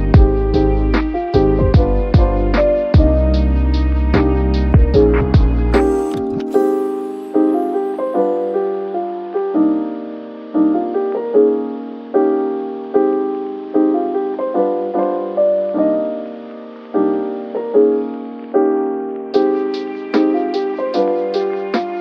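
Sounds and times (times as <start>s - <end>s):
higher piano notes: 0.0s - 22.0s
slow piano chords: 0.0s - 22.0s.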